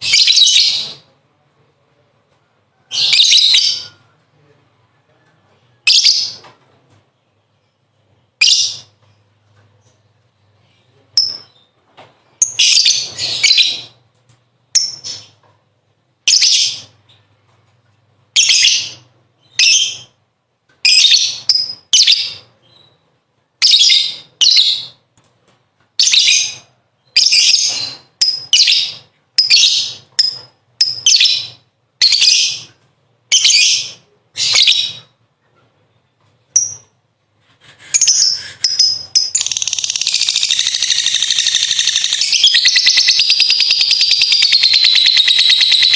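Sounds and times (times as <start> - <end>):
lovebird chattering: 38.0 - 45.9.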